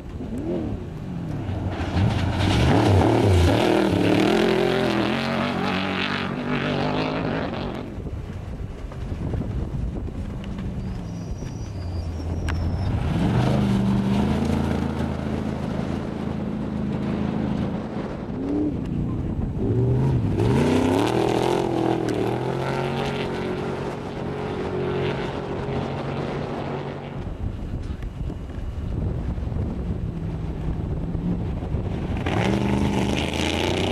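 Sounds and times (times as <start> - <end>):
off-road vehicle engine revving: 0.0 - 7.9, 12.2 - 27.3, 31.4 - 33.9.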